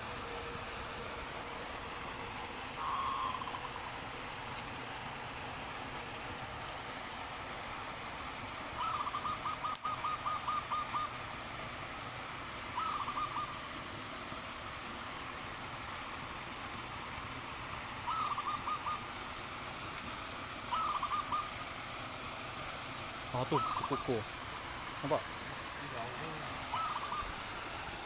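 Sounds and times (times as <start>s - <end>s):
steady background hiss: 0.0s - 28.0s
dove cooing: 2.8s - 3.8s, 8.8s - 11.2s, 12.8s - 13.6s, 18.0s - 19.1s, 20.7s - 21.6s, 23.4s - 24.3s, 25.0s - 27.6s.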